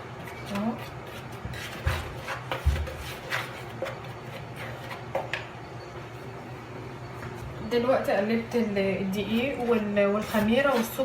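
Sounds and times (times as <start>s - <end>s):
utensil scraping dry flour in bowl: 0.2s - 5.3s, 9.0s - 11.0s.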